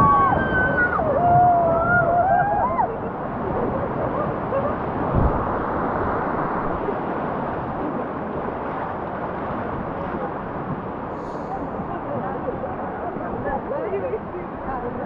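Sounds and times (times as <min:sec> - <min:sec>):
river water rushing: 0:00.0 - 0:15.0
wind noise on microphone: 0:00.0 - 0:15.0
short low thump: 0:05.1 - 0:06.8.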